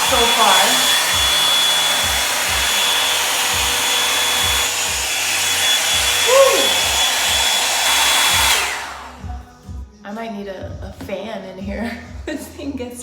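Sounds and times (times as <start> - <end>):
hot-air brush dryer whining: 0.0 - 9.3.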